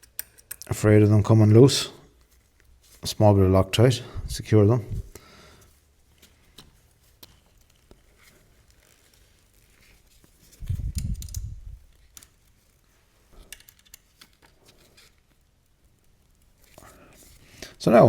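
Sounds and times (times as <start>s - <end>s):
screw clicks and scrapes: 0.0s - 0.7s, 13.3s - 15.2s.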